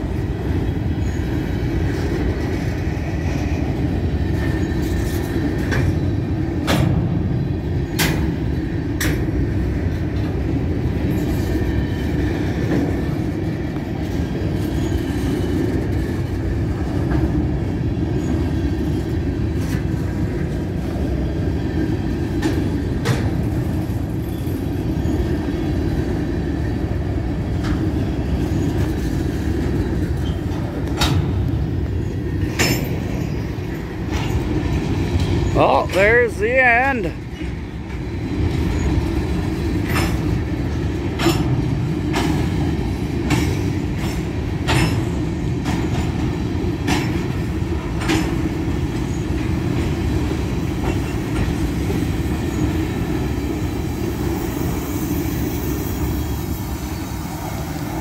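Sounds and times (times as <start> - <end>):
steel wheels rumbling on rail: 0.0 - 58.0
freight cars clanking: 26.9 - 53.6.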